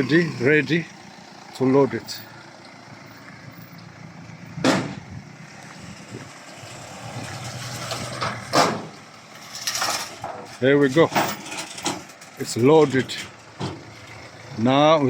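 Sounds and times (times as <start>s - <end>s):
vehicle engine running: 0.0s - 15.0s
loud clunks: 4.6s - 5.1s, 8.0s - 9.0s.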